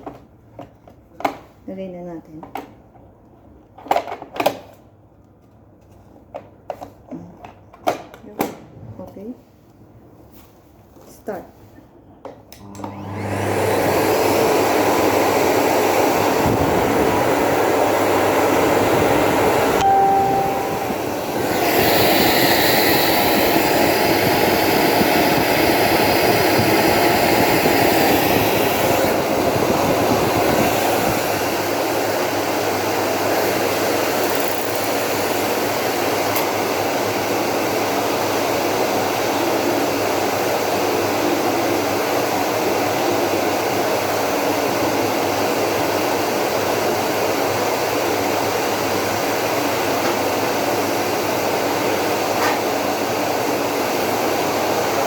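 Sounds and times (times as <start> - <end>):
vacuum cleaner running: 12.6 - 55.0.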